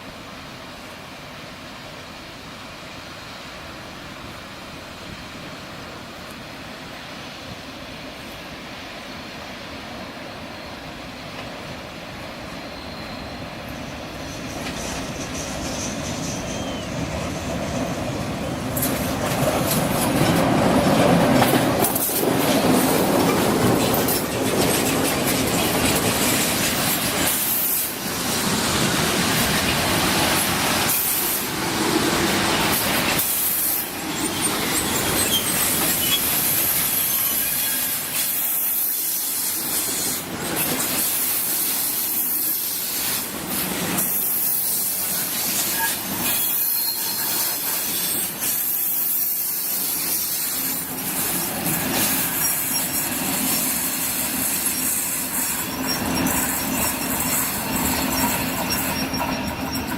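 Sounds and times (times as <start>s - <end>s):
train rail rumble: 0.0s - 59.9s
faint wheel squeal: 12.6s - 17.0s, 33.4s - 39.6s, 44.0s - 50.8s, 52.0s - 53.6s, 54.6s - 59.9s.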